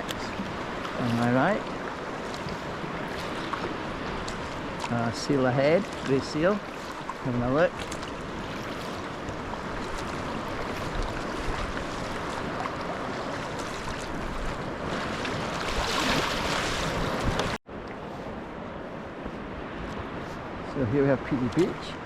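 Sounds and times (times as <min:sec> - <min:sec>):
sea water splashing: 0:00.0 - 0:18.3
wind on microphone: 0:06.8 - 0:22.0.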